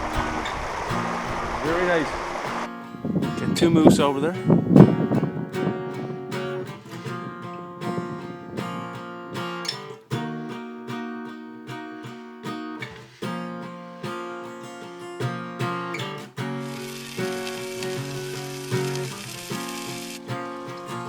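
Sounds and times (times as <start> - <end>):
strummed acoustic guitar chords: 0.0 - 21.0.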